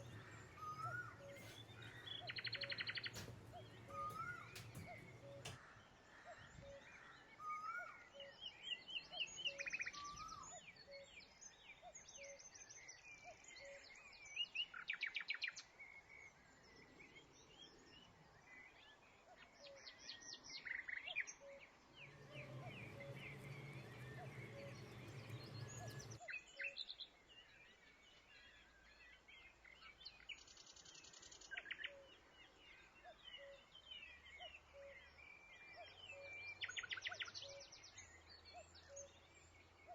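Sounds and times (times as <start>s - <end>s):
songbirds chirping and trilling: 0.0s - 7.4s, 21.2s - 39.9s
low steady hum: 22.0s - 26.2s.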